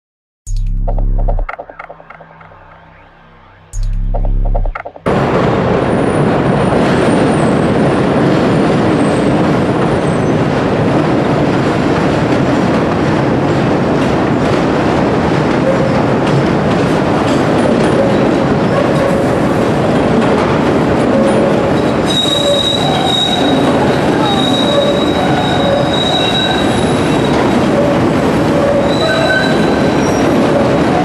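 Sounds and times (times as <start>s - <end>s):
elevated train rumbling: 0.5s - 31.0s
train wheel squeals: 21.1s - 31.0s.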